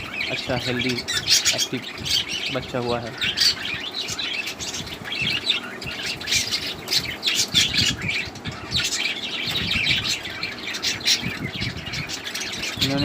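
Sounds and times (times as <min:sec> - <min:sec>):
budgerigars chattering: 0:00.0 - 0:13.0.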